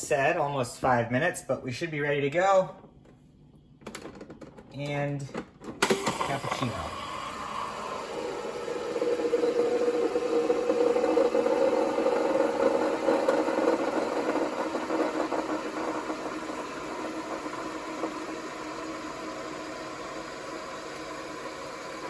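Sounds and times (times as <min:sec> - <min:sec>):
espresso machine buzzing hum: 0:05.8 - 0:22.0.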